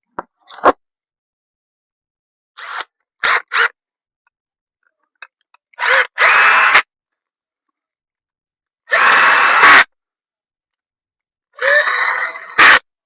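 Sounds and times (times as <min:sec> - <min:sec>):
power drill whining: 0:02.6 - 0:03.8, 0:05.8 - 0:06.9, 0:08.9 - 0:09.9, 0:11.6 - 0:12.8.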